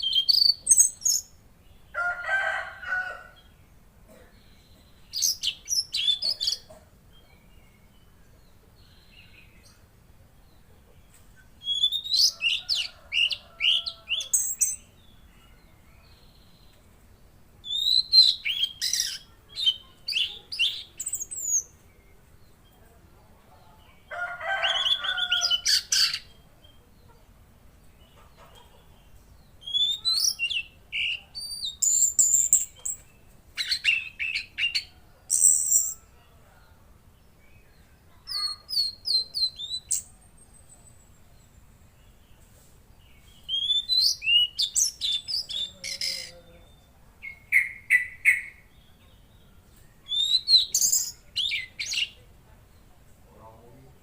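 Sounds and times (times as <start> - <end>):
bird singing whistled notes: 0.0 - 1.4, 11.6 - 12.4, 17.6 - 21.7, 29.6 - 36.1, 38.3 - 41.5, 43.4 - 48.7, 49.9 - 52.2.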